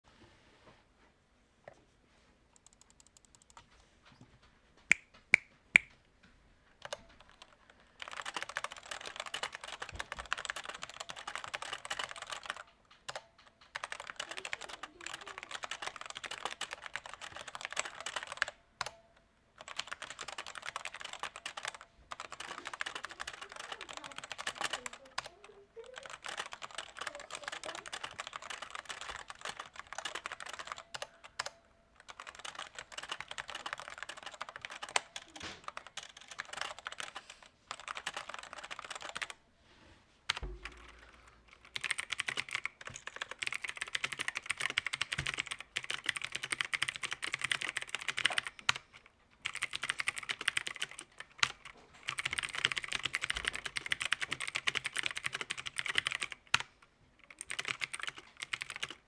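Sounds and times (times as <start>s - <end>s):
mechanical keyboard typing: 2.6s - 3.7s, 6.8s - 19.0s, 19.6s - 39.4s, 40.3s - 59.0s.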